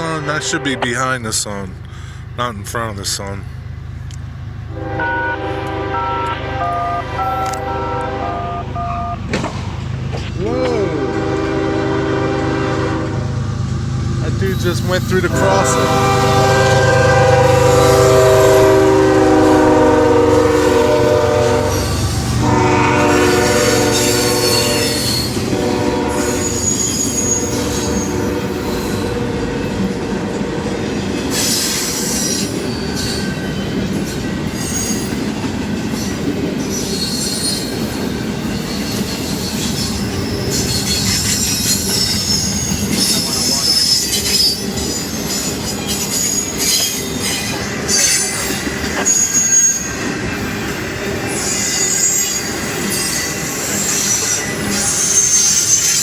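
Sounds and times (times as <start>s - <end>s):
train horn blowing: 0.0s - 1.2s, 4.7s - 9.3s, 10.4s - 13.4s, 14.7s - 32.0s
train wheels rumbling on rails: 0.0s - 56.0s
high-pitched wheel squeal: 17.1s - 29.3s, 34.6s - 35.2s, 36.7s - 56.0s.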